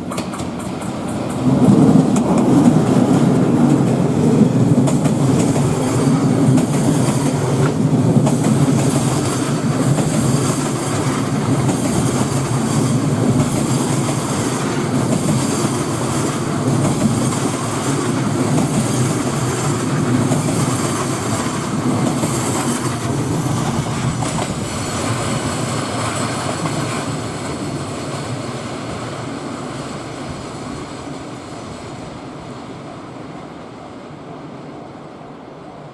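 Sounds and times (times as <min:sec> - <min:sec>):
train wheels clattering over rails: 0:00.0 - 0:29.4
high squeals from train wheels: 0:02.8 - 0:07.6.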